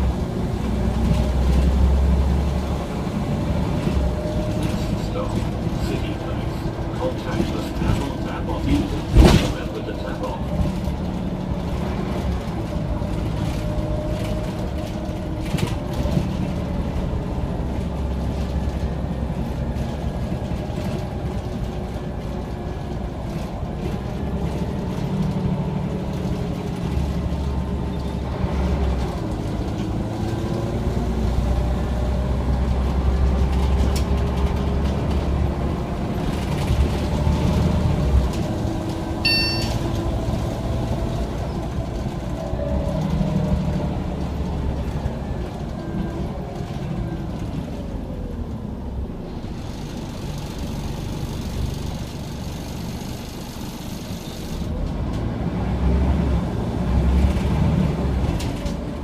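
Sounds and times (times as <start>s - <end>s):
bus diesel engine: 0.0s - 59.0s
short electronic beep: 39.3s - 39.9s.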